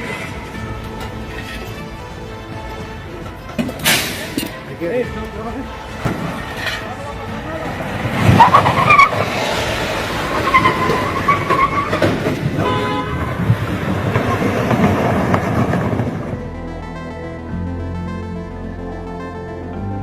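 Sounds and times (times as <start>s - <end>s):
rumbling vehicle noise: 0.0s - 20.0s
high horn blast: 5.8s - 15.3s
loud bang: 6.0s - 11.3s.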